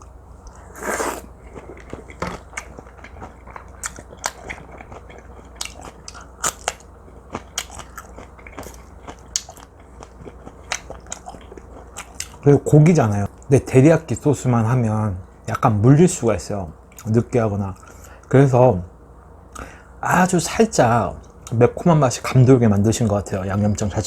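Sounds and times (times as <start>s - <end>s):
person chewing: 0.4s - 12.4s.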